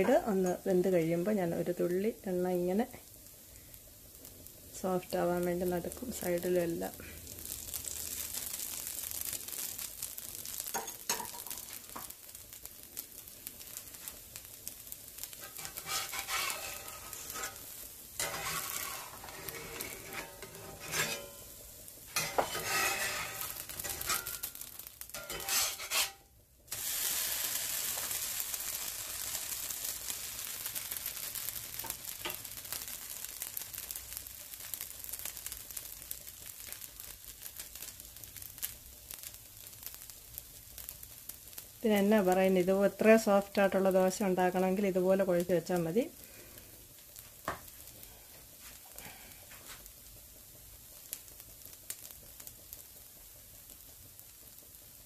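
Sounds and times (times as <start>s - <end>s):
batter sizzling in a skillet: 0.0s - 55.0s
metallic clicks and scrapes: 15.4s - 17.6s.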